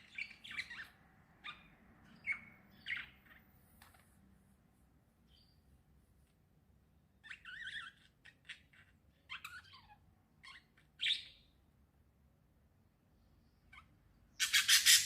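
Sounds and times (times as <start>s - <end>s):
small birds chirping: 0.0s - 4.3s, 5.2s - 6.0s, 7.0s - 11.8s, 12.6s - 15.0s.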